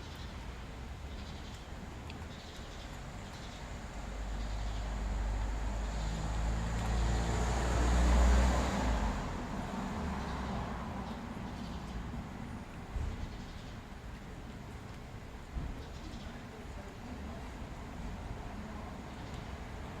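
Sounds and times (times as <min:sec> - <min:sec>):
road vehicle passing by: 0:03.3 - 0:13.4.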